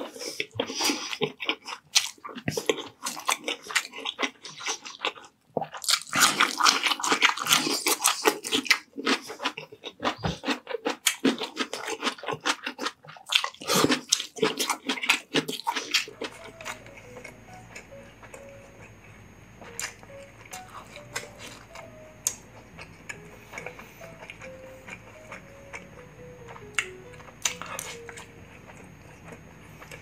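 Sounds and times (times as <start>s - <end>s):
crunching cucumber bites: 0.0s - 30.0s
faint music: 14.1s - 30.0s.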